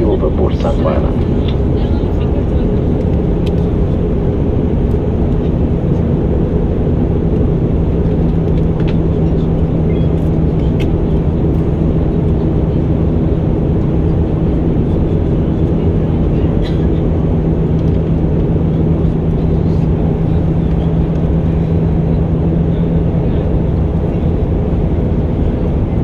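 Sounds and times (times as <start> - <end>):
low steady hum: 0.0 - 8.6
aircraft cabin engine drone: 0.0 - 26.0.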